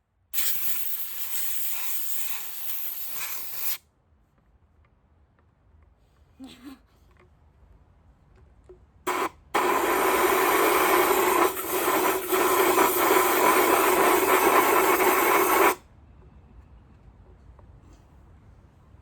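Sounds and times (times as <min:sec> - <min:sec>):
compressed air blowgun hissing: 0:00.4 - 0:03.8, 0:09.1 - 0:15.8.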